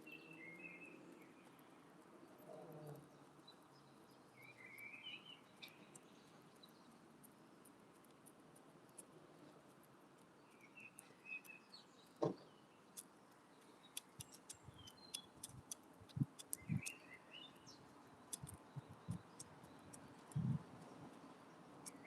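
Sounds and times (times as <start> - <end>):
small birds chirping: 0.0 - 22.0
beak ticking on seed and feeder: 12.8 - 22.0.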